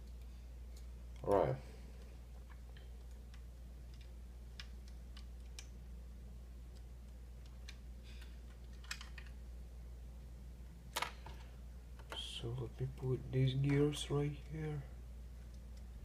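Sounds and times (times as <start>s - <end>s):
light clicks of small parts: 0.0s - 5.8s, 6.6s - 9.4s, 15.4s - 16.0s
steady low hum: 0.0s - 16.0s.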